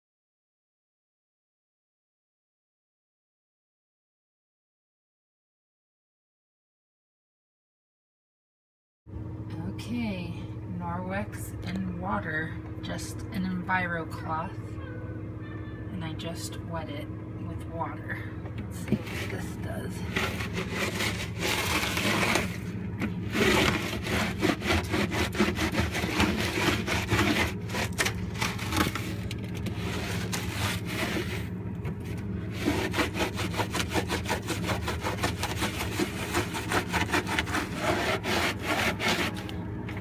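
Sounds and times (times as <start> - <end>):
cloth scrubbing a surface: 18.9 - 31.5, 32.5 - 39.5.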